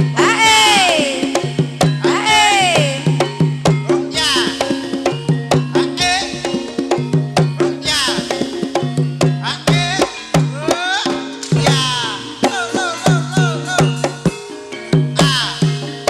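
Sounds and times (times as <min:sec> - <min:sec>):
struck gamelan notes: 0:00.0 - 0:16.0.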